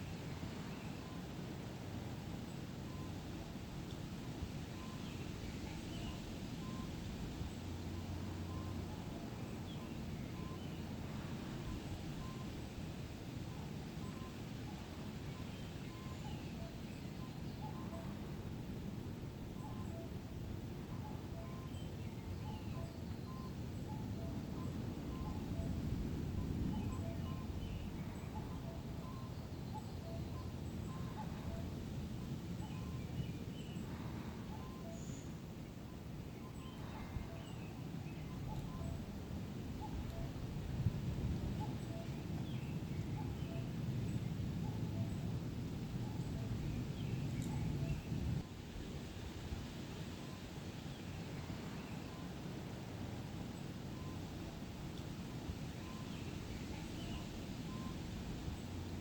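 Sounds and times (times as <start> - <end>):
low wind rumble: 0.0 - 59.0
faint bird chirps: 2.5 - 3.2, 4.7 - 12.7, 13.4 - 18.3, 19.5 - 39.1, 41.5 - 45.3, 46.0 - 48.4, 53.9 - 54.6, 55.2 - 58.6
faint bird calls: 26.4 - 39.1.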